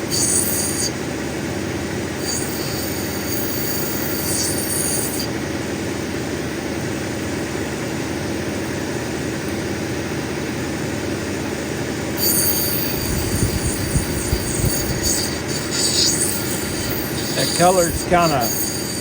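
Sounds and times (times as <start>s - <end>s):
grinding wheel running: 0.0s - 1.0s, 2.2s - 5.3s, 12.2s - 19.0s
stone grinding on wheel: 12.2s - 19.0s.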